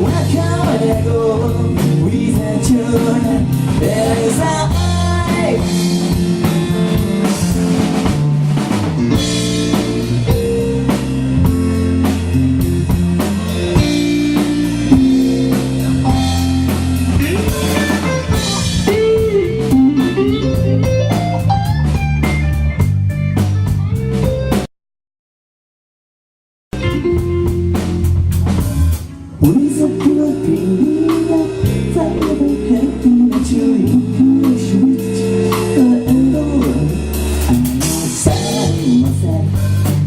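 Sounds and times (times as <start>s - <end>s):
live blues rock band playing: 0.0s - 24.7s, 26.7s - 40.0s
bending guitar notes: 4.8s - 24.6s, 26.7s - 39.0s.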